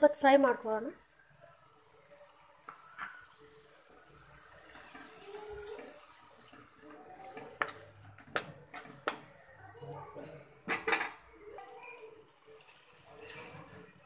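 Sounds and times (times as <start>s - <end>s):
paste hissing in hot oil: 1.1s - 10.6s.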